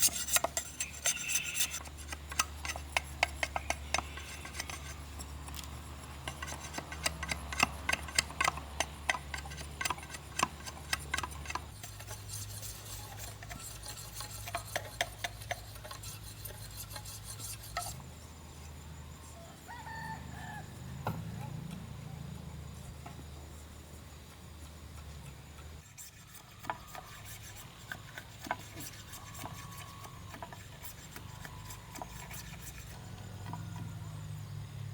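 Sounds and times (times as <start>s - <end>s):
hand tools clicking on bamboo: 0.0s - 18.0s, 26.0s - 34.0s
rubbing and scraping on bamboo: 0.0s - 20.1s, 23.9s - 34.6s.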